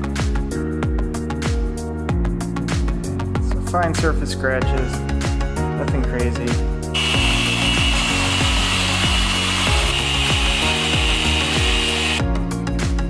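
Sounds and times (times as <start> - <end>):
background music with beat: 0.0 - 13.0
machine polisher whirring: 7.0 - 12.2.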